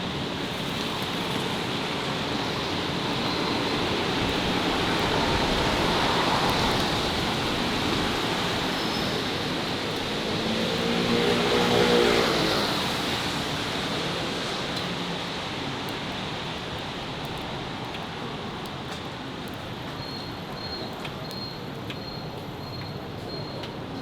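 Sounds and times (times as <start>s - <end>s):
city street traffic: 0.0s - 24.0s
vehicle passing close: 10.1s - 13.4s.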